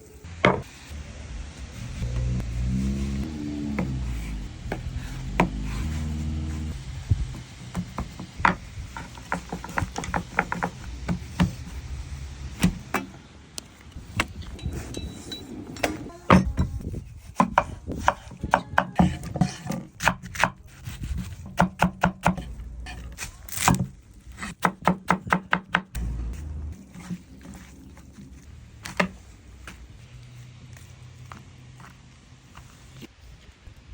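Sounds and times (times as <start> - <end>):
knife chopping on wooden board: 4.6 - 6.5, 7.7 - 11.6, 16.3 - 20.6, 21.2 - 23.0, 23.6 - 26.0.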